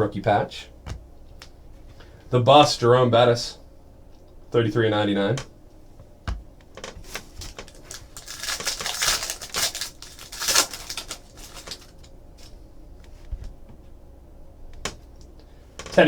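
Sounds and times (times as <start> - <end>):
cards and wrappers rustling: 6.8 - 12.6.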